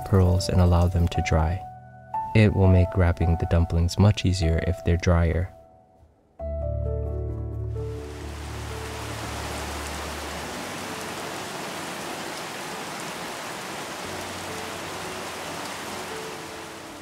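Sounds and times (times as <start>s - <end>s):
steady rain falling: 7.8s - 17.0s.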